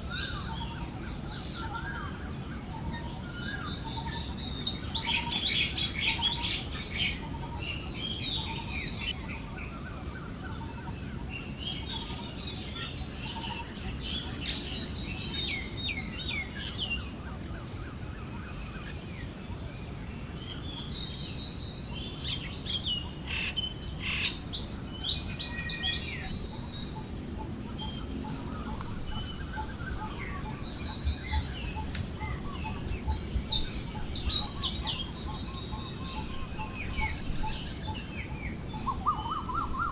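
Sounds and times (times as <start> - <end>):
forest birds chirping: 0.0 - 39.9.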